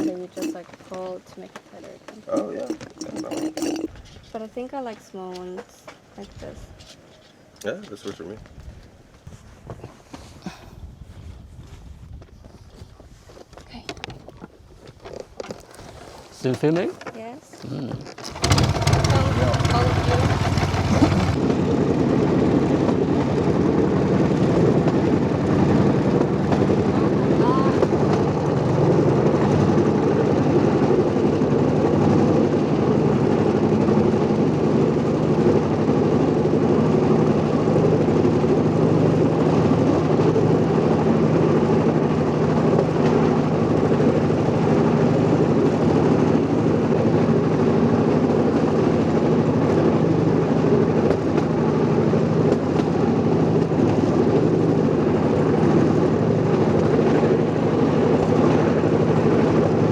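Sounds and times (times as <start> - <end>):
small engine droning: 18.2 - 41.2.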